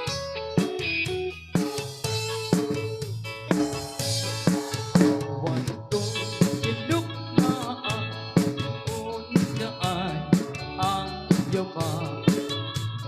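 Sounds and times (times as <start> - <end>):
drum kit beat: 0.0 - 13.0
electric guitar: 0.0 - 13.0.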